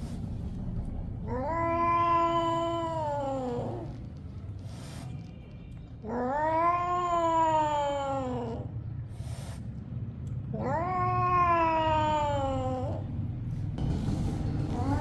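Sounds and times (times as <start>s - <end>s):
cat meowing: 1.2s - 4.0s, 6.0s - 8.7s, 10.5s - 13.1s, 14.7s - 15.0s.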